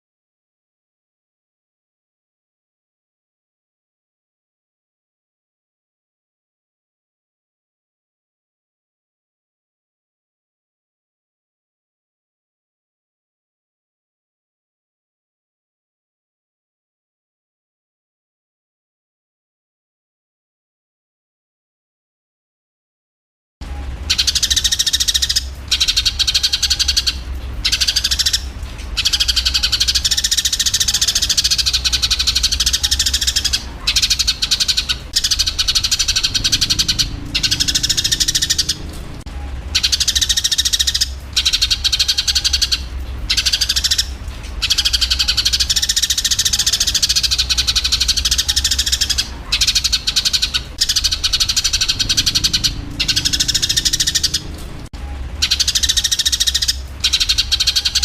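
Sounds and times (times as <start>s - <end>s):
low hum: 23.6s - 49.8s
sparrows chattering: 24.0s - 54.8s, 55.4s - 58.0s.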